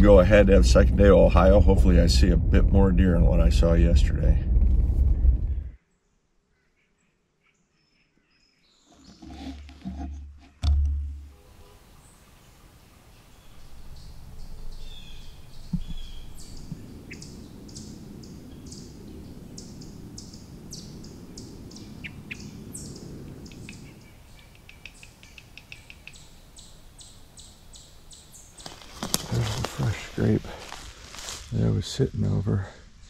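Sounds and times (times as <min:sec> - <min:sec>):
low rushing noise: 0:00.0 - 0:05.8, 0:13.6 - 0:24.3
sharp knock: 0:09.9 - 0:11.3
birds chirping: 0:10.7 - 0:33.0.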